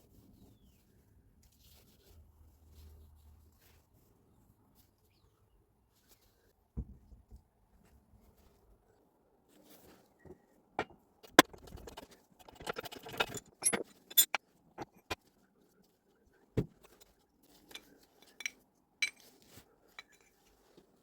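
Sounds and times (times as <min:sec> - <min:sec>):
metal parts clinking: 0:11.2 - 0:15.2, 0:16.8 - 0:19.3.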